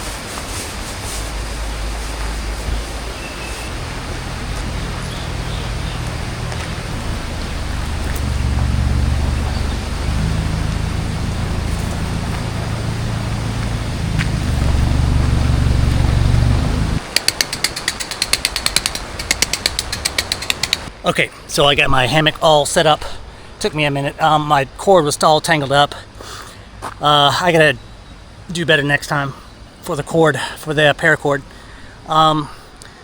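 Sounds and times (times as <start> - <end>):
low droning hum: 0.6 - 17.0
rapid clicks: 17.0 - 20.9.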